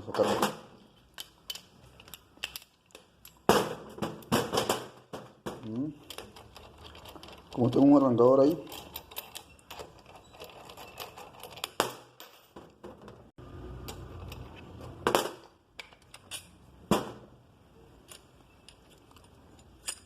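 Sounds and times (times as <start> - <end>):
metal tools clicking and knocking: 1.0 - 13.2, 15.4 - 16.6, 18.0 - 20.0.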